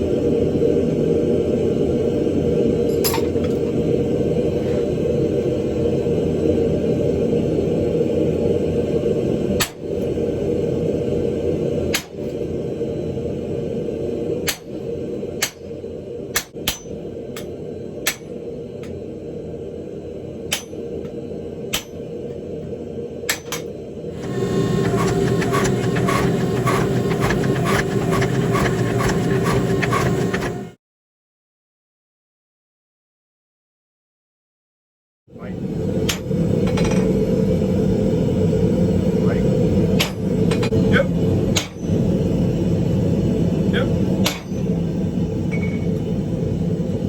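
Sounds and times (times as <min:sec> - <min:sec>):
steady background noise: 0:03.8 - 0:30.8
hammer striking iron on anvil: 0:11.9 - 0:12.2, 0:14.5 - 0:14.8, 0:15.4 - 0:15.7, 0:16.3 - 0:18.3, 0:20.5 - 0:20.8, 0:21.7 - 0:22.0, 0:23.3 - 0:23.7, 0:41.5 - 0:41.9, 0:44.2 - 0:44.6.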